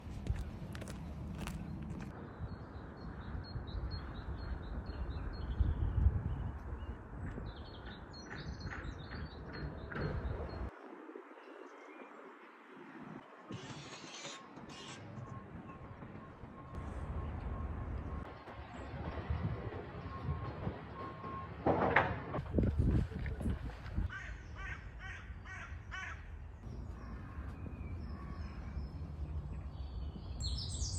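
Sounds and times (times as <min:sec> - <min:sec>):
wind rumbling on microphone: 0:00.0 - 0:13.2, 0:22.3 - 0:25.6
crow cawing: 0:24.1 - 0:26.3.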